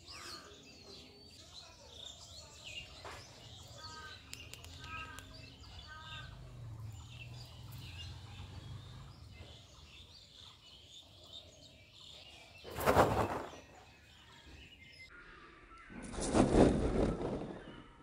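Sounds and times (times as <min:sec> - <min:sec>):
bird chirps: 0:00.0 - 0:16.2
short rush of noise: 0:12.7 - 0:13.6.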